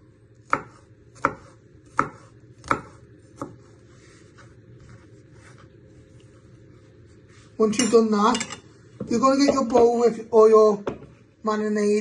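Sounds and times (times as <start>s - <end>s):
knife chopping on board: 0.4s - 3.7s.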